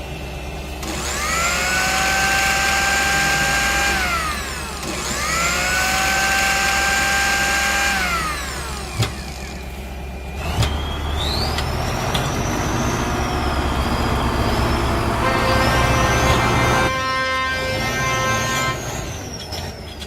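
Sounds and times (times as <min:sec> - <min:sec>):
machine-like whine: 0:00.0 - 0:20.0
high whistling tone: 0:09.6 - 0:19.5.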